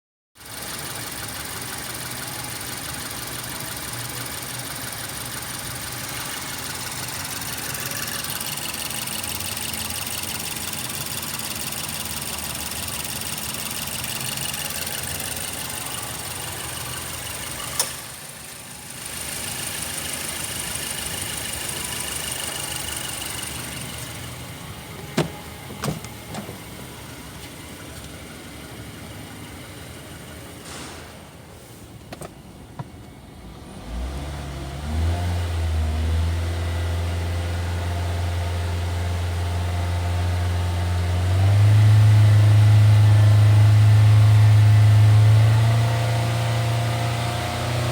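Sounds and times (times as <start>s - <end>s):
car engine running: 0.4s - 34.0s
sharp knocks: 25.0s - 26.6s.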